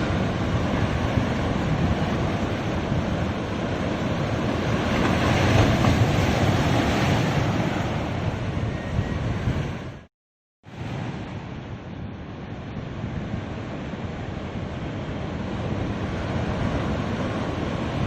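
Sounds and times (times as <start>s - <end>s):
ocean surf washing onto beach: 0.0s - 9.9s, 10.7s - 18.0s
wind rumbling on microphone: 0.0s - 10.1s.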